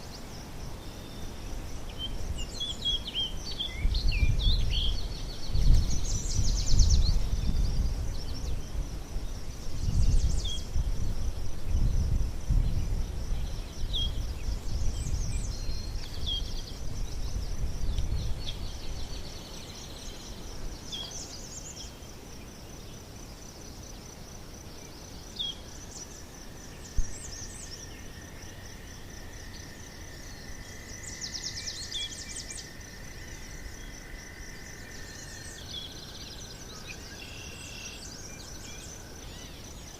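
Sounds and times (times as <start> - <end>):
low wind rumble on microphone: 0.0 - 21.8, 26.1 - 35.6
high insect trill: 0.0 - 39.9.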